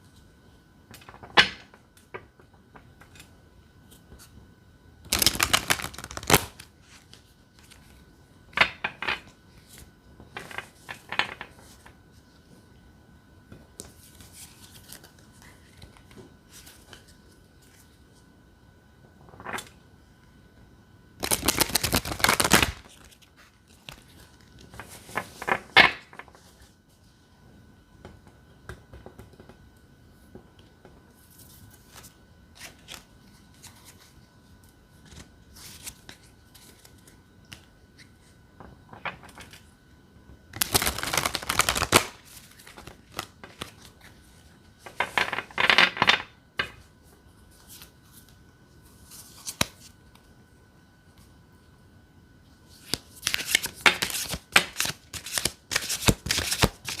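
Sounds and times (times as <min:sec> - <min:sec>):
cards being shuffled: 0:05.1 - 0:08.0, 0:21.2 - 0:26.6, 0:40.6 - 0:44.2, 0:49.1 - 0:49.9, 0:52.7 - 0:57.0
cards tapping and sliding: 0:40.6 - 0:42.1, 0:52.9 - 0:57.0.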